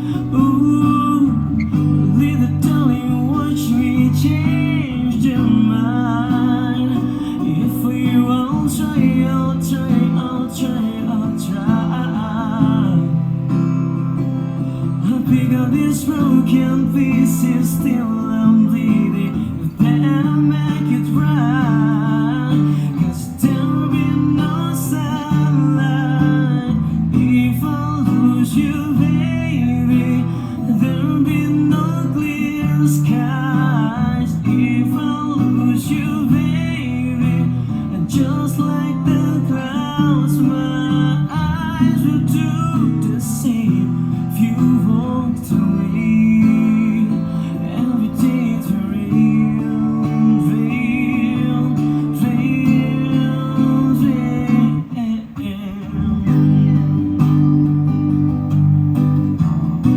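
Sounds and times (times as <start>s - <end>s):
person singing with vibrato: 0.0s - 57.2s
acoustic guitar strumming: 0.0s - 59.9s.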